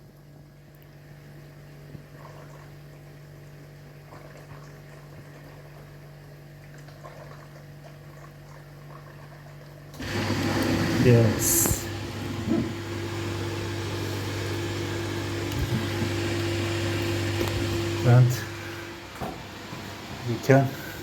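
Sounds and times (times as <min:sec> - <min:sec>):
water running into dishwasher: 0:06.7 - 0:21.0.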